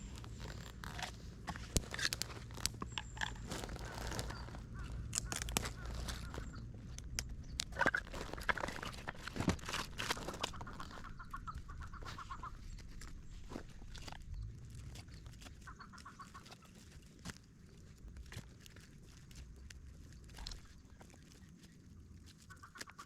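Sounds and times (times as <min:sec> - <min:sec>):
bird calling: 0:00.0 - 0:13.9, 0:15.1 - 0:16.8, 0:22.5 - 0:23.0.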